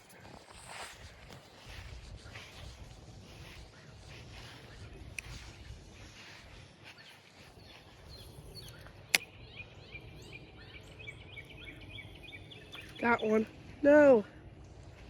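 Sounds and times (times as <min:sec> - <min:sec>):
small bird chirping: 0:03.3 - 0:13.6
sharp click: 0:08.6 - 0:09.3.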